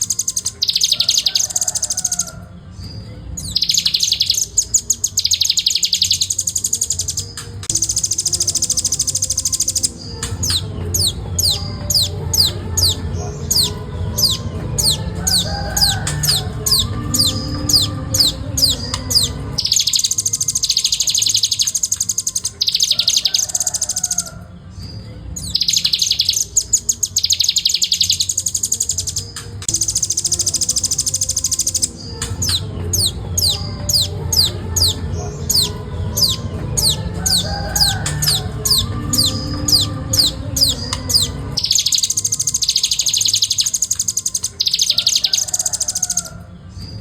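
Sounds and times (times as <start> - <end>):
bird singing high trills: 0.0 - 47.0.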